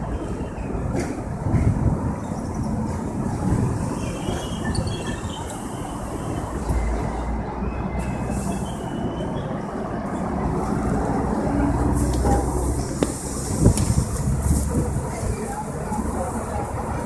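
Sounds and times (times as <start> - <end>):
subway train wheels rumbling on rails: 0.0 - 17.0
wheel squeals: 3.8 - 9.6.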